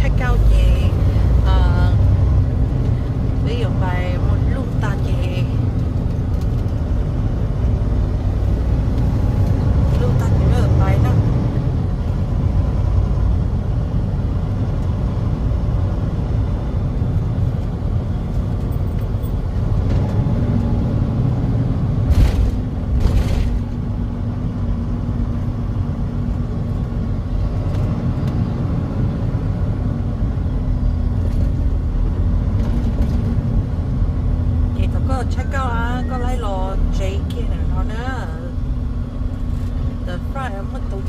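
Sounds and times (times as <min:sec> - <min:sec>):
truck engine rumbling: 0:00.0 - 0:41.0.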